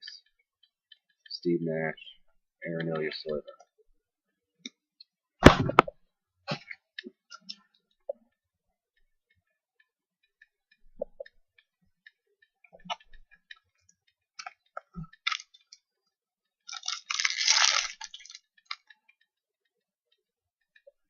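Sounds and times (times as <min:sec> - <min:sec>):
packaging rustling: 0:16.7 - 0:18.4.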